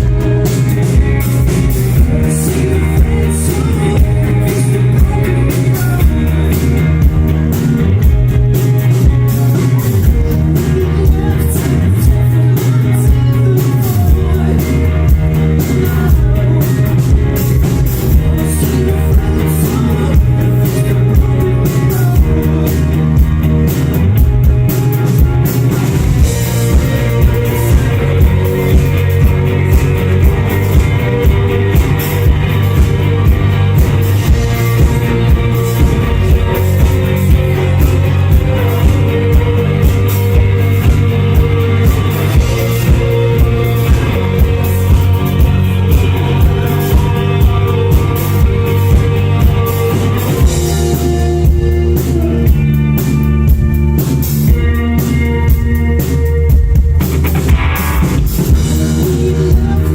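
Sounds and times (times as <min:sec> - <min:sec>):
person singing: 0:00.0 - 0:56.8, 0:57.8 - 0:59.9
drums on a steady beat: 0:00.0 - 0:59.9
electric guitars and bass: 0:00.0 - 0:59.9.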